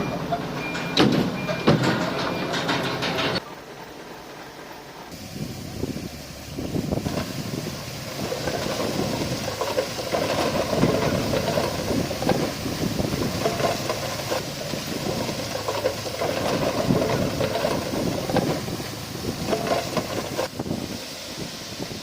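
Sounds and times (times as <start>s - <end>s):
heavy diesel machinery running: 0.0s - 22.0s
knocks and clatter: 0.3s - 3.4s, 8.1s - 20.5s.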